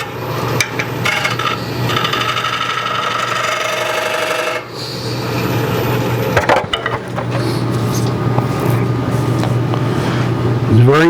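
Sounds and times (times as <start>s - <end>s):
gouge scraping spinning wood: 0.0s - 5.2s, 6.0s - 10.2s
wood lathe humming: 0.0s - 6.3s.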